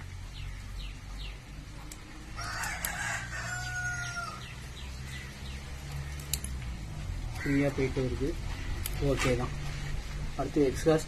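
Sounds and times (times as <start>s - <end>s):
rooster crowing: 2.3s - 4.6s.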